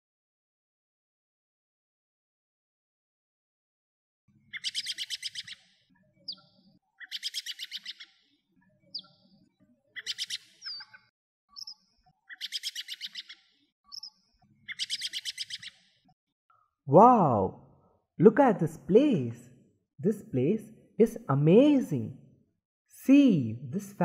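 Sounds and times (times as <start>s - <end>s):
birds singing trills: 4.4s - 16.1s.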